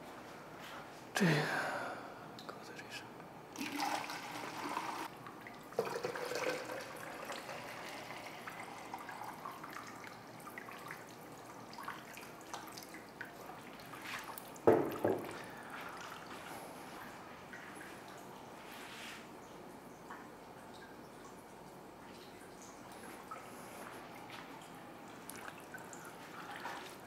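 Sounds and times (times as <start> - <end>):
water dripping and trickling: 3.6 - 18.7, 19.3 - 27.0
knock: 14.7 - 15.4.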